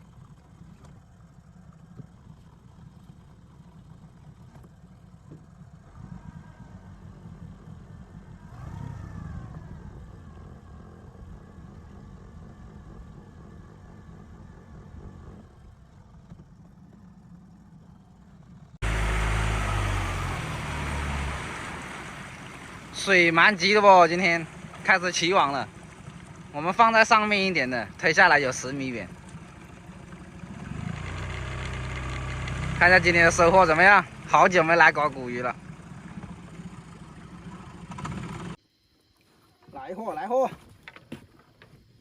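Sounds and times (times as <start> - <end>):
boat motor rumbling: 0.0 - 38.6
rushing wind and water: 18.8 - 38.5.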